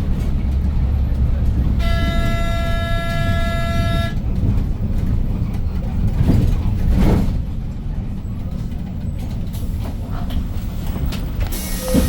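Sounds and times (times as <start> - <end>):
bus engine rumbling: 0.0 - 12.0
vehicle horn: 1.8 - 4.2.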